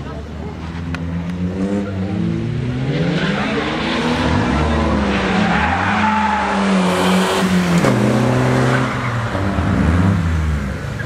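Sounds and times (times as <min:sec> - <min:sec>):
car engine revving: 0:00.1 - 0:11.0.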